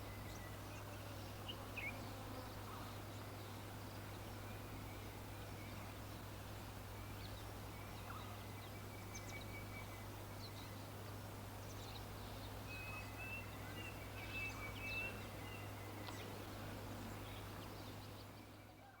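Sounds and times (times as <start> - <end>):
songbirds chirping: 0.0 - 19.0
steady background hiss: 0.0 - 19.0
thin whistled bird notes: 11.7 - 16.4.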